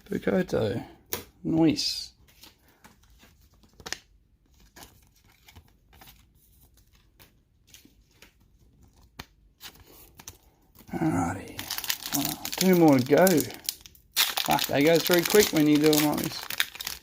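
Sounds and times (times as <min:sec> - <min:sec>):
trading cards clicking and rustling: 0:11.6 - 0:17.0.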